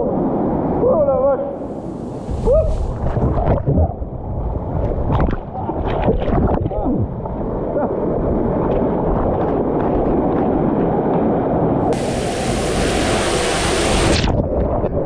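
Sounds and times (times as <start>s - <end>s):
wind noise on microphone: 0.0s - 15.0s
hiss of spray: 1.4s - 3.0s, 11.9s - 14.3s
rushing water on slide: 11.9s - 14.5s.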